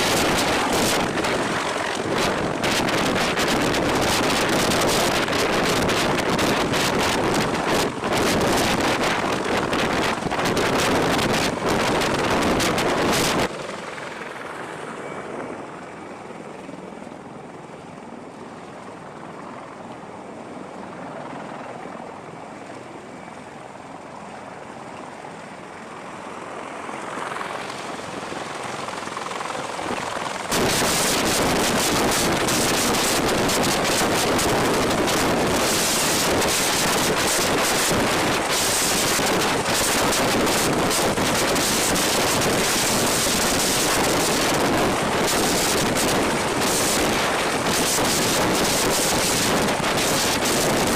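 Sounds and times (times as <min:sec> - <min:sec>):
wind on microphone: 0:00.0 - 0:13.5, 0:29.9 - 0:50.9
helicopter noise: 0:00.0 - 0:50.9.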